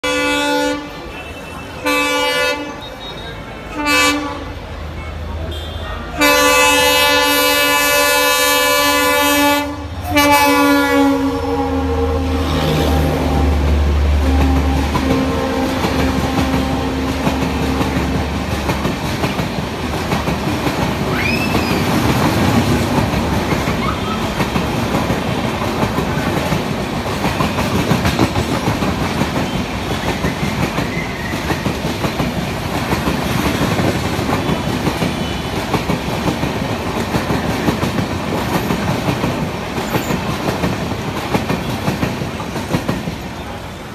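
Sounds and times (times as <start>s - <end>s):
train horn blasting: 0.0s - 4.6s, 5.5s - 18.5s
coaches clattering over rails: 6.2s - 43.9s.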